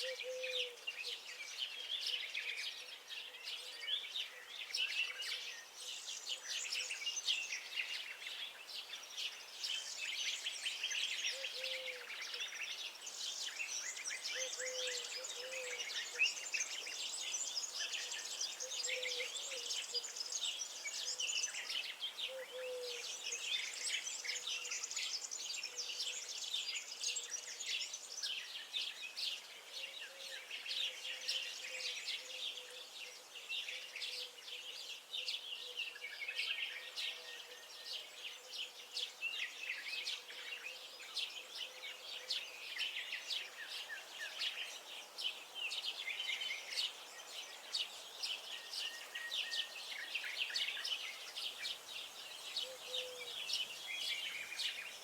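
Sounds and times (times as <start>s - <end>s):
songbirds singing and chirping: 0.0s - 55.0s.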